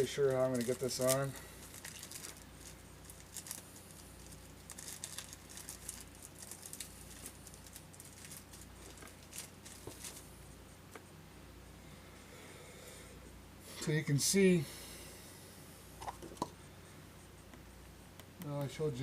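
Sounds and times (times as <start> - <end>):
light scratching of small parts: 0.0 - 11.2
steady low hum: 0.0 - 19.0.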